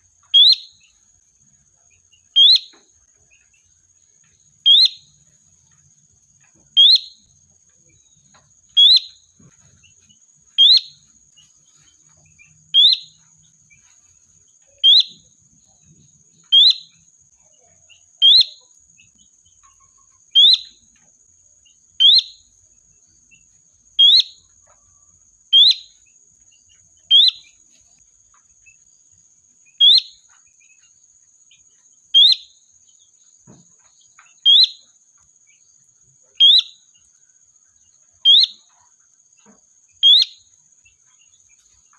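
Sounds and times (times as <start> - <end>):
bulbul calling: 0.0 - 0.9, 2.3 - 2.8, 4.6 - 5.2, 6.6 - 7.3, 7.9 - 10.0, 10.6 - 11.1, 11.8 - 13.2, 14.7 - 15.8, 16.4 - 17.0, 18.2 - 18.7, 19.6 - 20.9, 22.0 - 22.4, 24.0 - 24.5, 25.5 - 26.0, 27.0 - 27.6, 29.8 - 30.3, 32.2 - 32.6, 34.3 - 34.9, 36.3 - 36.9, 38.2 - 38.9, 40.0 - 40.5.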